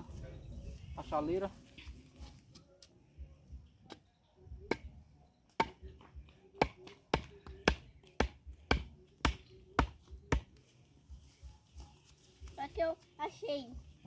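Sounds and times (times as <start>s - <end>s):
chopping blows on wood: 4.7s - 5.0s, 6.6s - 10.6s.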